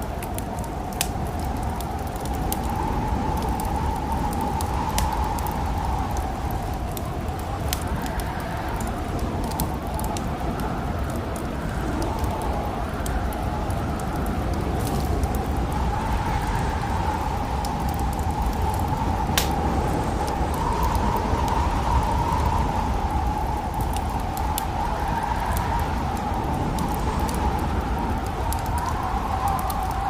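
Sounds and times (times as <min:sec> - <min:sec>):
howling snowstorm wind: 0:00.0 - 0:30.0
wood fire crackling: 0:00.0 - 0:30.0.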